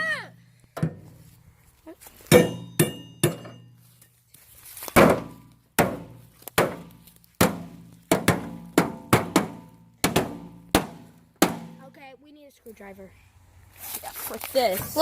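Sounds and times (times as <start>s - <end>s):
sledgehammer pounding sheet metal: 2.3s - 3.7s, 5.0s - 11.9s.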